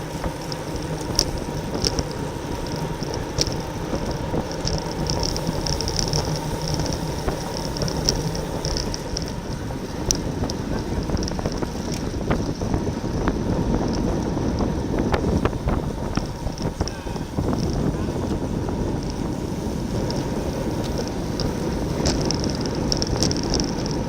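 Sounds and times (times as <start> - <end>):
bicycle drivetrain buzzing: 0.0 - 24.0
wind rushing over microphone: 0.0 - 24.0.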